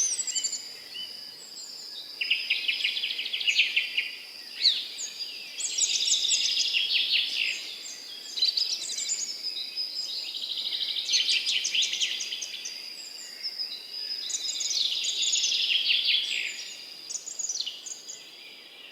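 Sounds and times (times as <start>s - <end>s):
songbirds singing: 0.0s - 18.9s.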